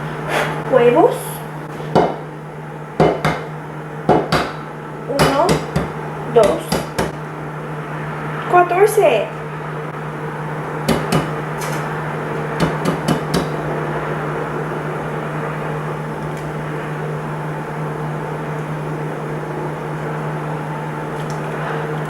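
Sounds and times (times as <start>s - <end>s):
electric motor hum: 0.0s - 22.0s
sharp knocks: 1.9s - 2.3s, 3.0s - 7.2s, 10.9s - 11.8s, 12.6s - 13.6s.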